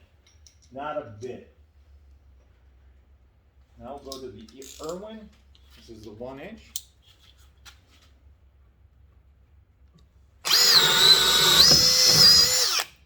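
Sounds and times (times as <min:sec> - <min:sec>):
hammer drill boring through wood: 0:10.4 - 0:13.0.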